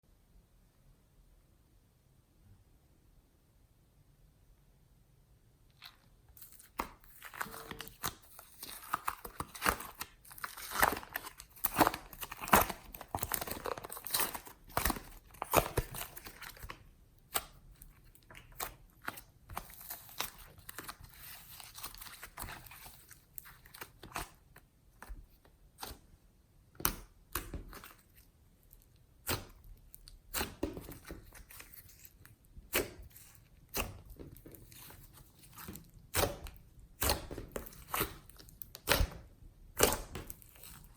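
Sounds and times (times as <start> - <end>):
slime crackling and popping: 26.8 - 40.9.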